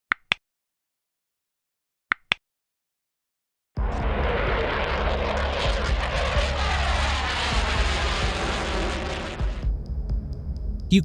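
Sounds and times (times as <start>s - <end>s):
jet engine rushing: 4.0s - 9.6s.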